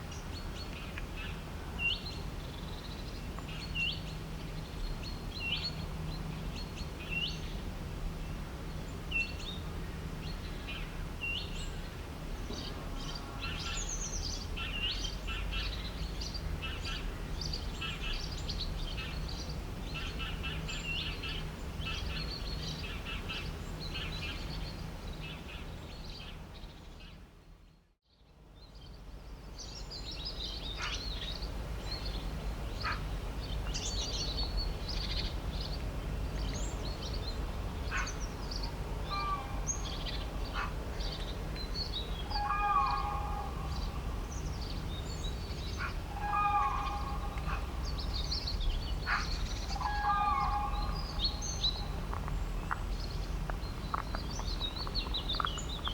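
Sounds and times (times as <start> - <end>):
birds chirping and calling: 36.4 - 55.9
bird repeating a fuller call: 39.0 - 39.9, 42.2 - 44.0, 45.7 - 47.7, 49.0 - 51.7.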